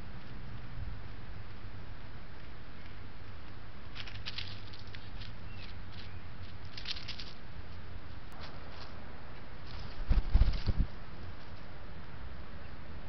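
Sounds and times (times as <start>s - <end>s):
microphone hiss: 0.0s - 13.0s
bird rustling in dry leaves: 3.8s - 11.7s.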